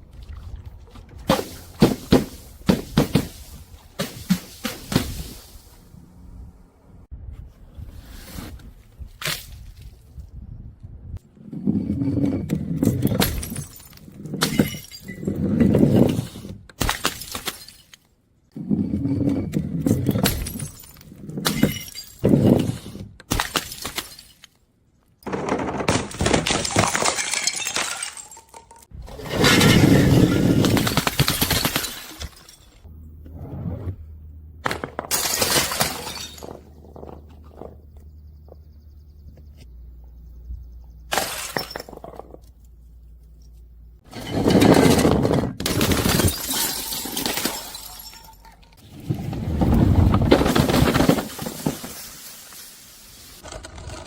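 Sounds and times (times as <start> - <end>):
glass crushing and shattering: 12.4 - 18.1, 19.1 - 24.6, 25.4 - 32.9, 34.6 - 37.8, 41.1 - 42.6, 43.4 - 48.8, 50.1 - 52.7.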